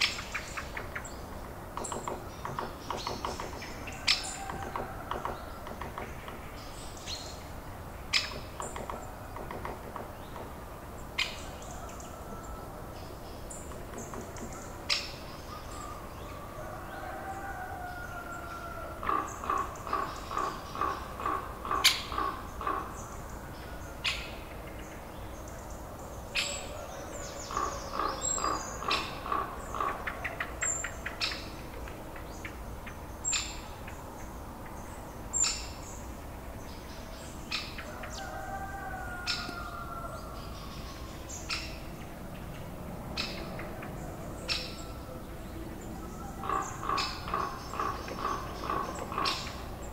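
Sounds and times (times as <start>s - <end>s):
birds calling: 0.0s - 49.9s.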